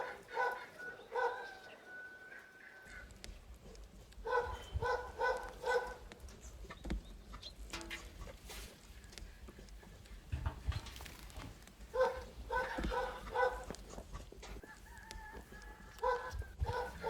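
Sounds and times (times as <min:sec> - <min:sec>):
dog barking: 0:00.0 - 0:02.1, 0:04.2 - 0:06.1, 0:11.9 - 0:13.8, 0:15.9 - 0:17.0.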